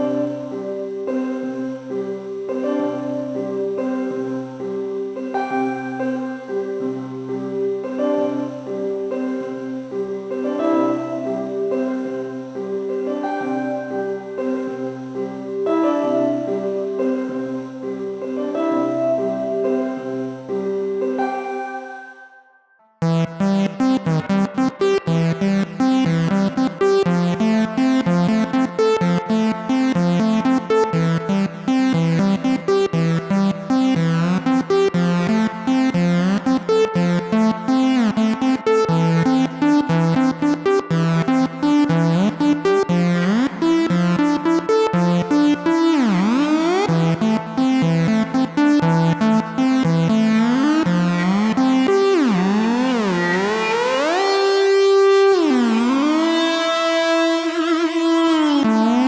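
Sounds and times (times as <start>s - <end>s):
gliding synth tones: 52.2s - 59.0s
metallic synthesizer notes: 52.4s - 59.0s.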